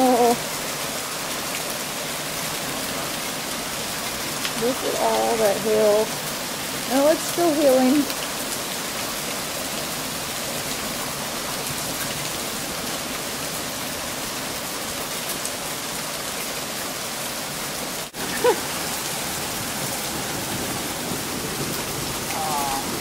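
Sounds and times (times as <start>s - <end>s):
heavy rain and hail: 0.0s - 23.0s.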